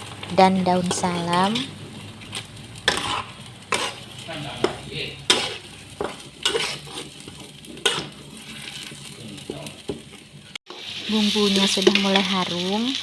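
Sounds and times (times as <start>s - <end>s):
spice paste sizzling in oil: 0.0s - 13.0s
utensil scraping and knocking a pan: 2.2s - 9.1s.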